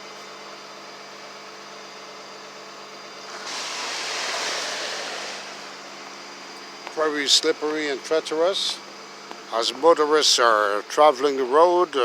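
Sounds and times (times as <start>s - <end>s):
steady low hum: 0.0s - 12.0s
vehicle tyres hissing on slush: 3.2s - 6.3s.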